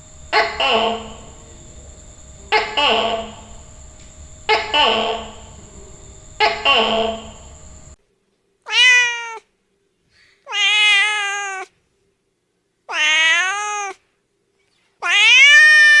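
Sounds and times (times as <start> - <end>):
cat meowing: 8.7 - 9.5, 10.5 - 11.8, 12.9 - 14.0, 15.0 - 16.0.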